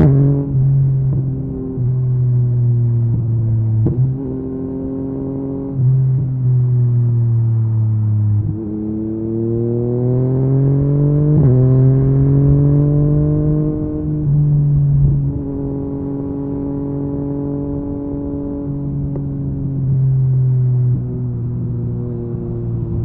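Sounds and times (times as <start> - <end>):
motorcycle engine revving: 8.4 - 23.0.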